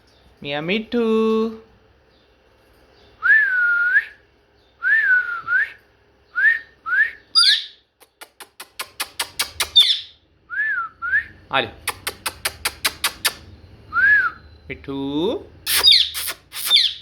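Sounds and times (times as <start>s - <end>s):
parrot whistling: 6.4s - 7.8s, 15.7s - 17.0s
parrot squawk: 7.4s - 7.8s, 9.6s - 10.2s, 15.7s - 17.0s.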